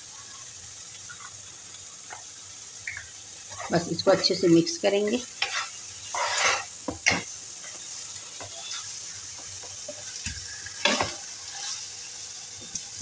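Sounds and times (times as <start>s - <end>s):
chicken sizzling in frying pan: 0.0s - 13.0s
metal ladle scraping pan: 5.4s - 7.3s.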